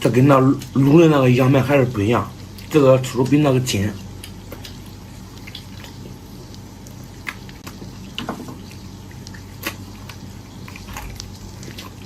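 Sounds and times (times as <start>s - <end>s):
chewing and gnawing: 2.2s - 12.0s
wet mouth sounds: 4.0s - 12.0s.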